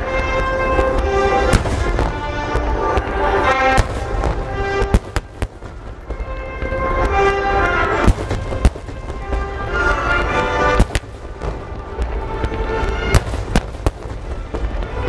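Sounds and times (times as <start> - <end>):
fireworks bursting with bangs: 0.0 - 15.0
music playing: 0.0 - 15.0.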